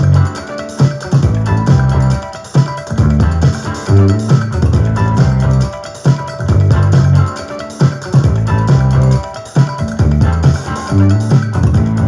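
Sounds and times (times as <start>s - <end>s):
plucked bass line: 0.0s - 0.4s, 1.2s - 2.3s, 2.9s - 5.8s, 6.4s - 7.4s, 8.2s - 12.0s
drums: 0.0s - 12.0s
guitar: 0.0s - 12.0s.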